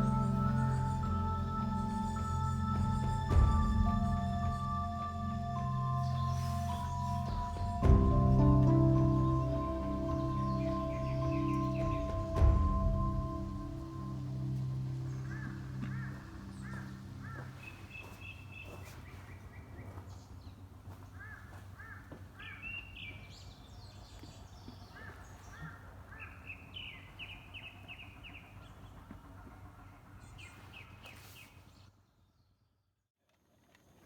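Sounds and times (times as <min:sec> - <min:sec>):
low background rumble: 0:00.0 - 0:17.9
bird trills: 0:00.0 - 0:19.4
birds chirping: 0:00.0 - 0:32.0.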